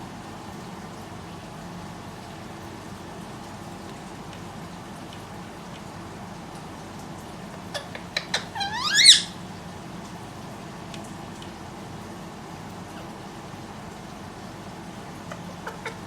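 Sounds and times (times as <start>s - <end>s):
parrot squawk rising in pitch: 8.3s - 9.4s.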